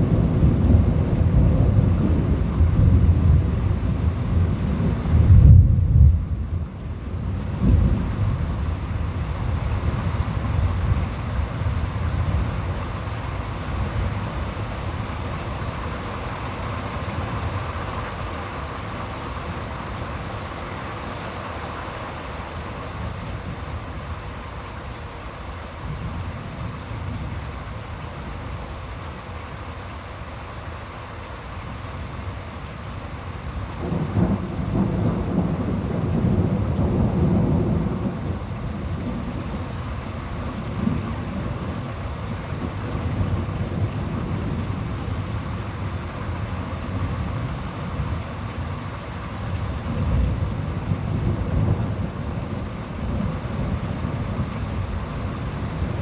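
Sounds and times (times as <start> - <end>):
thunder rumbling: 0.0 - 20.3, 33.8 - 48.7, 49.4 - 56.0
steady rain falling: 0.0 - 56.0.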